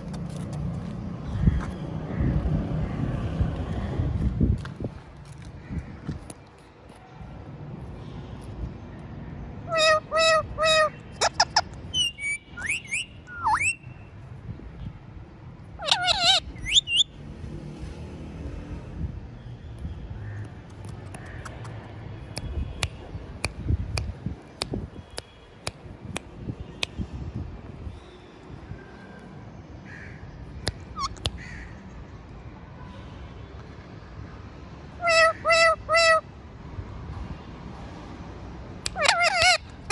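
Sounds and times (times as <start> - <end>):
parrot calling and whistling: 9.7 - 13.8, 15.8 - 17.1, 30.7 - 31.2, 38.9 - 39.9.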